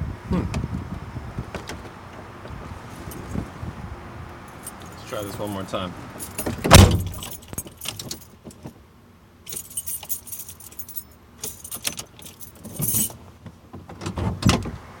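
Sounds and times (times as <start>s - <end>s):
keys jangling: 4.5s - 8.6s, 9.5s - 13.2s
loud thump: 6.6s - 7.2s.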